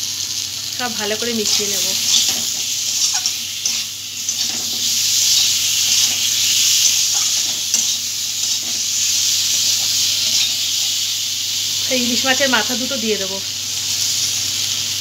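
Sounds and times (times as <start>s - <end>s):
food sizzling in hot oil: 0.0s - 15.0s
spatula scraping: 1.4s - 11.0s.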